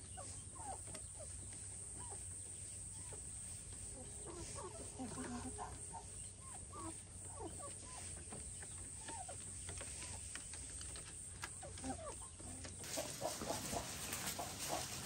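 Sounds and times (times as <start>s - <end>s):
chickens clucking: 0.0s - 15.0s
rustling noise: 12.8s - 15.0s.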